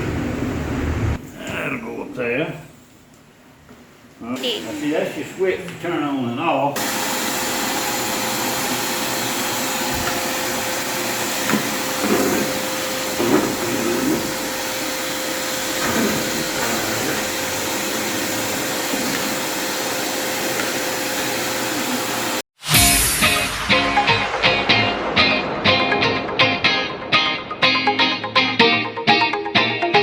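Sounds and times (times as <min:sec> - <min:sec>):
vacuum cleaner running: 0:06.8 - 0:22.4.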